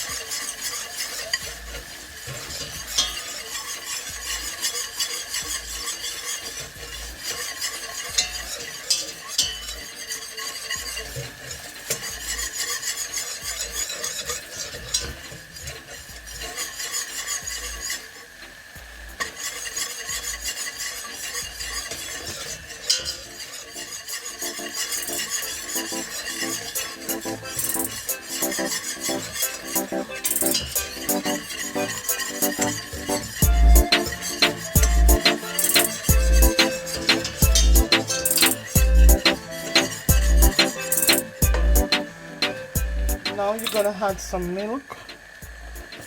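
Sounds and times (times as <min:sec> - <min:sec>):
utensil stirring roux in pan: 0:19.2 - 0:22.6.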